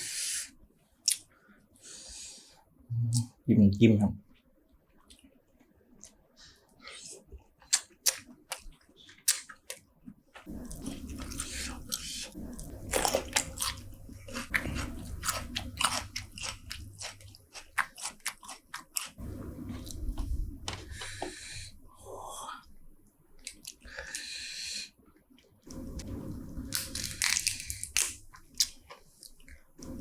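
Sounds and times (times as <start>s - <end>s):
chewing with crunches: 5.9s - 21.4s, 23.4s - 24.3s, 26.7s - 30.0s
person chewing and biting food: 6.9s - 21.4s, 26.7s - 29.7s.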